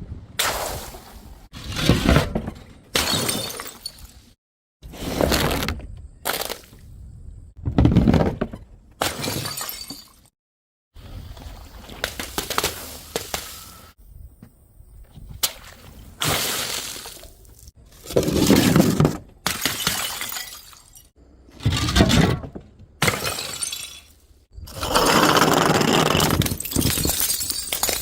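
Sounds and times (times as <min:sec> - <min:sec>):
glass bottles shattering: 0:03.0 - 0:04.1, 0:09.1 - 0:10.3, 0:19.5 - 0:21.1, 0:23.0 - 0:24.2, 0:26.1 - 0:28.0.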